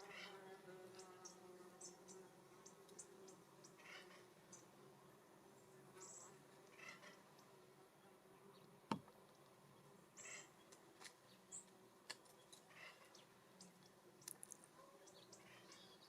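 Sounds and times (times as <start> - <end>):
birds chirping softly: 0.0 - 16.0
light ticks at bird feeder: 2.6 - 3.1.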